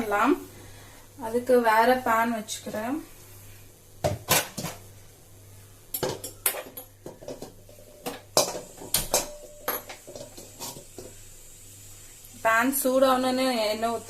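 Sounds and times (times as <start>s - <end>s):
kitchen utensils clattering: 4.1s - 4.8s, 6.0s - 11.1s
pan set on stove: 5.9s - 12.6s.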